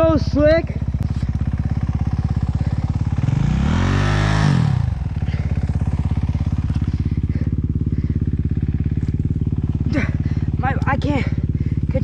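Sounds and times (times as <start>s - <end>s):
dirt bike engine idling and revving: 0.0s - 12.0s.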